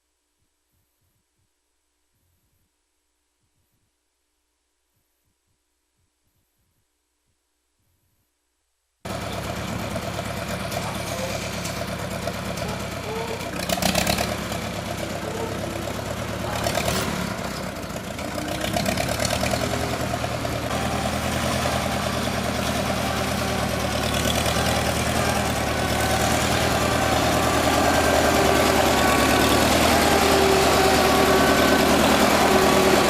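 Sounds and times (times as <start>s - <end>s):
vehicle engine running at low revs: 9.1s - 33.0s.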